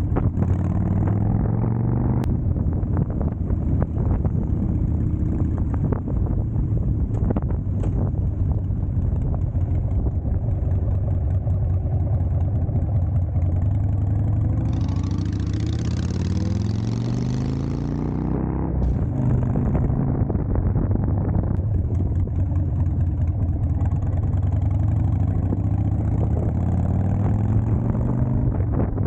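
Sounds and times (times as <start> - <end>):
road noise: 0.0 - 29.0
car engine accelerating: 14.2 - 22.2.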